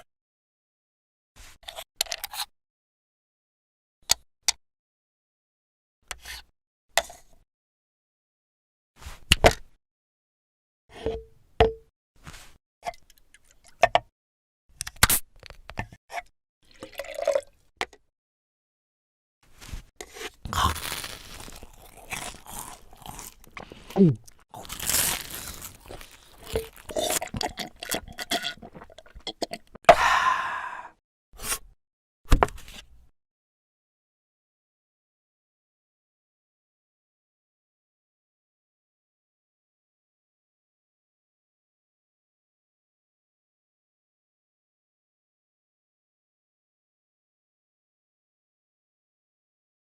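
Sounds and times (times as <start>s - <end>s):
crunchy liquid-like sounds: 20.4s - 29.8s.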